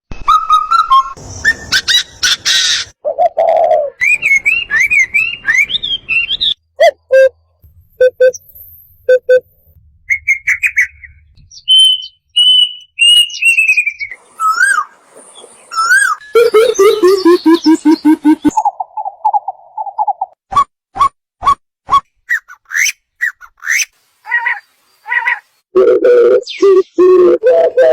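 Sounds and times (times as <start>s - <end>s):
birds calling: 1.2s - 6.6s, 10.1s - 20.2s, 22.3s - 25.6s.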